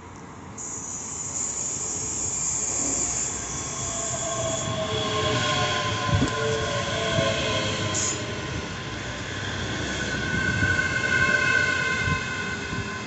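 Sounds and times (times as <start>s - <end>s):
train high steady hiss: 0.5s - 6.7s, 7.8s - 8.3s
train brakes squealing: 0.6s - 13.0s.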